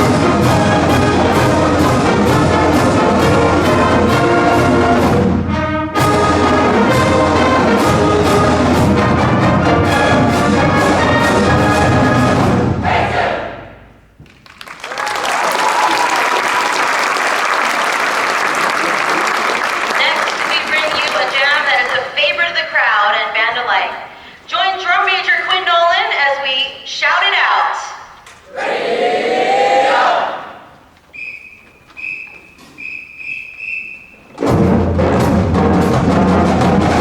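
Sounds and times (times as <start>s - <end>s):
marching band playing: 0.0s - 14.0s, 18.1s - 22.5s, 31.4s - 37.0s
audience applauding: 14.2s - 22.2s.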